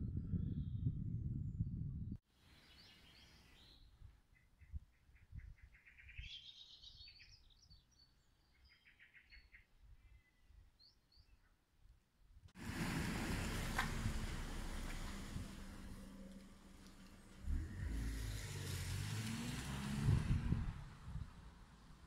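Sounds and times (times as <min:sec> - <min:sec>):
small birds singing: 0:02.5 - 0:11.6
low rumbling microphone noise: 0:20.0 - 0:21.5.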